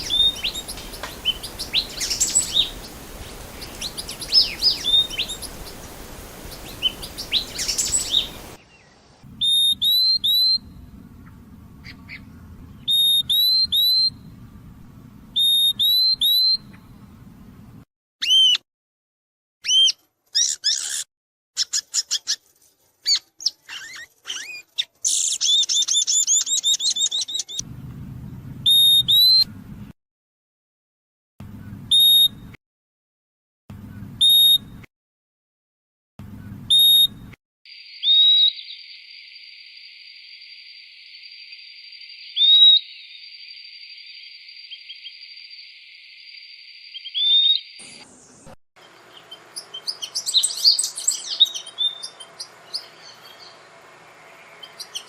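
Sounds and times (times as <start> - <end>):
bird whistled calls: 0.0 - 8.6, 9.4 - 10.7, 12.8 - 14.2, 15.4 - 16.8, 18.2 - 18.6, 31.9 - 32.4, 34.2 - 34.7, 36.7 - 37.2, 38.0 - 38.8, 42.4 - 43.1, 46.9 - 48.1, 49.2 - 53.5
bird chirps and trill: 0.0 - 14.3, 15.3 - 17.0, 18.2 - 18.6, 19.6 - 27.6, 34.0 - 34.8, 36.6 - 39.2, 41.9 - 55.0.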